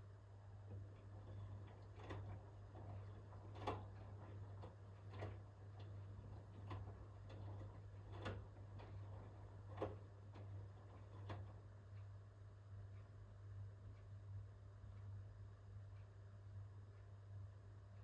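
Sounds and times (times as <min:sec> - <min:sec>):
steady low hum: 0:00.0 - 0:18.0
washing machine drum turning: 0:00.5 - 0:11.7.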